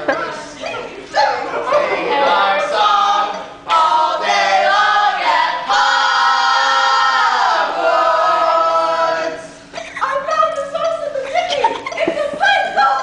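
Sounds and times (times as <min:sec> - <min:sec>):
voices singing in harmony: 0:00.0 - 0:09.6.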